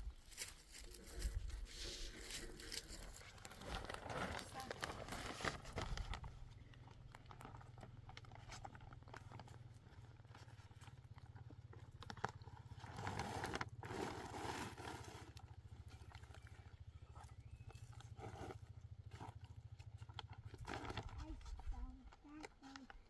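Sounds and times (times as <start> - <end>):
low hum with flutter: 0.0 - 23.0
rustling: 0.1 - 10.9.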